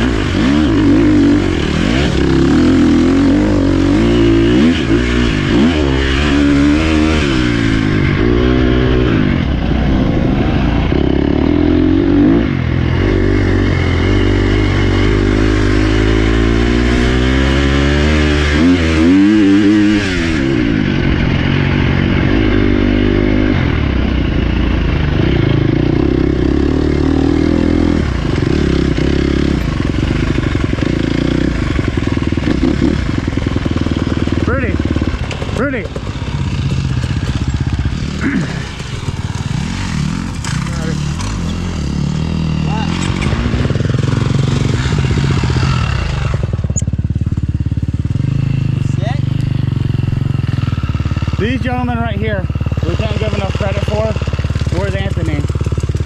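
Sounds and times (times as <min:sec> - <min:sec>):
dirt bike engine: 0:00.0 - 0:56.0.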